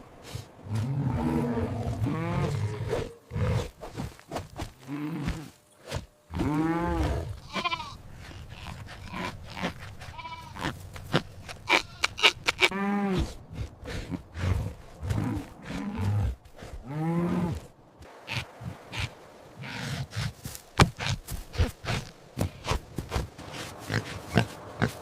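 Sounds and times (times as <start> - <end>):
farm animal bleating: 6.3 - 8.0, 8.6 - 12.8.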